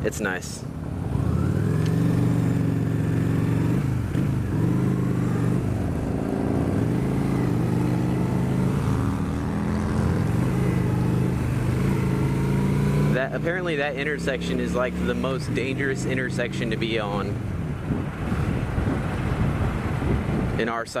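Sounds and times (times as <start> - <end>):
motorcycle engine running: 0.8 - 20.5
wind noise: 3.4 - 11.9, 15.3 - 21.0.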